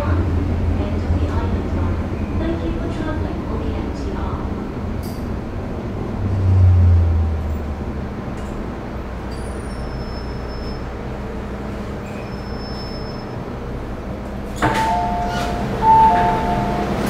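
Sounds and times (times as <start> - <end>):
steady low rumble: 0.0 - 9.3
two-note electronic chime: 14.7 - 17.0.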